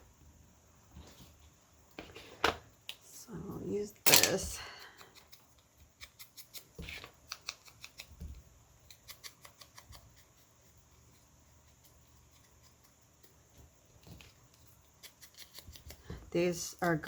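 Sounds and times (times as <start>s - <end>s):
scissors snipping paper: 15.0s - 16.0s.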